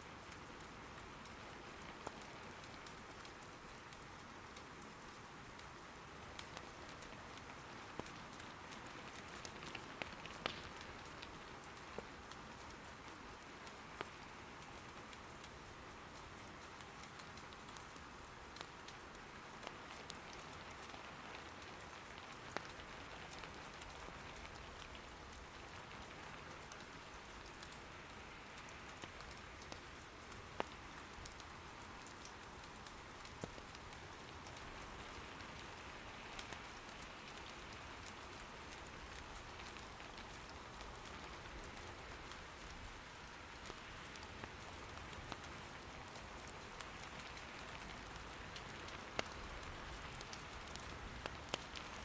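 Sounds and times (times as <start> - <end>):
soft rain patter: 0.0 - 52.0
firewood popping: 9.1 - 12.1, 46.4 - 52.0.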